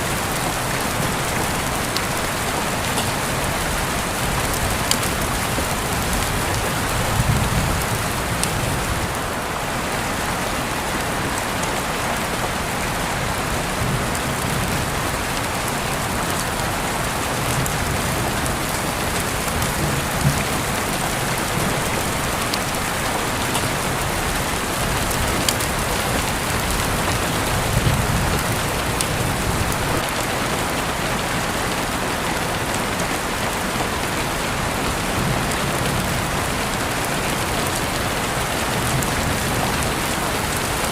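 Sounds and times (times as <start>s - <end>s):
steady rain pattering: 0.0s - 40.9s.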